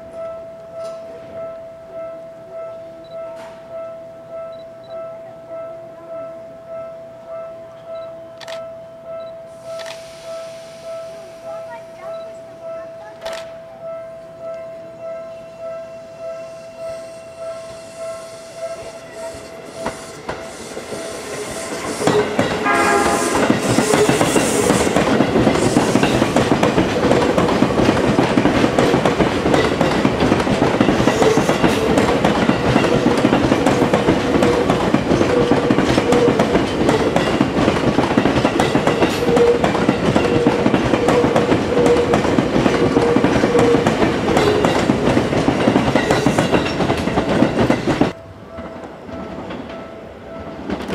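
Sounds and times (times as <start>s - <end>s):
train horn blast: 9.1s - 11.8s, 12.6s - 27.6s, 32.9s - 37.1s, 39.0s - 45.2s
wheels clacking over rail joints: 21.2s - 50.9s.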